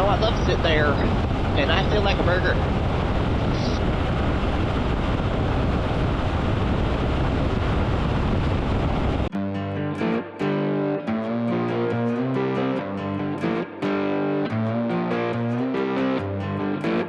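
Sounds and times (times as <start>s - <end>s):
electric guitar music: 0.0s - 8.0s, 8.8s - 17.0s
road noise: 0.0s - 9.3s
wind rushing over microphone: 0.0s - 9.3s.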